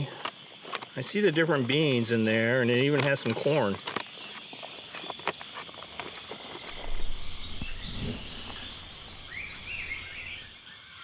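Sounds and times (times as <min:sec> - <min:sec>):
insects shrilling: 0:02.6 - 0:10.6.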